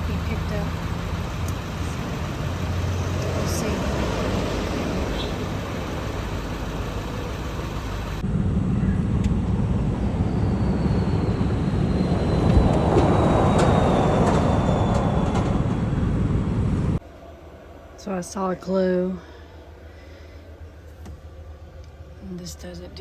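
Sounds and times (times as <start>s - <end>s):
vehicle engine and road rumble: 0.0s - 17.0s
faint falling whine: 0.0s - 23.0s.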